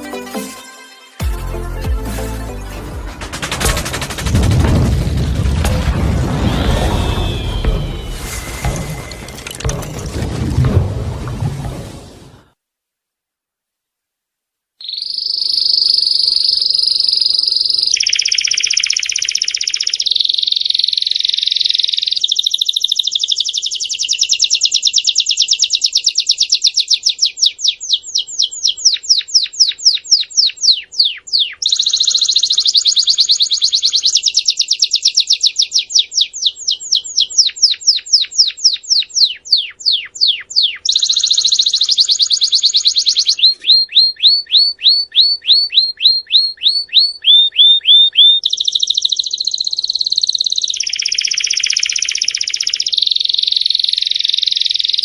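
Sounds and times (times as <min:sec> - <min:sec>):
canary singing: 0:14.8 - 0:55.0.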